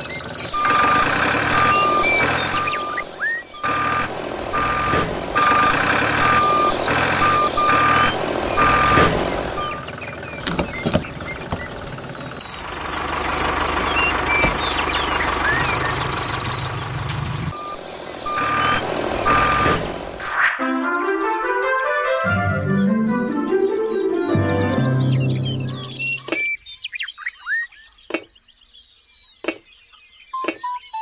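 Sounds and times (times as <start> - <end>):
vehicle reversing alarm beeping: 0.0 - 19.9
engine noise: 0.0 - 20.5.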